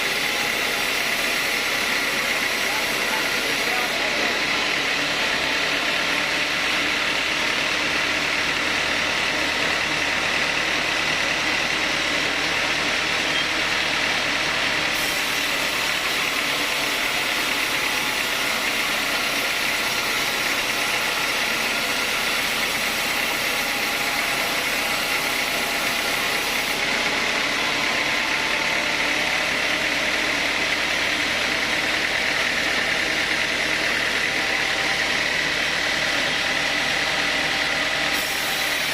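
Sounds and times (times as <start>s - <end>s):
high mechanical whine: 0.0s - 11.1s
sawmill machinery humming: 0.0s - 38.9s.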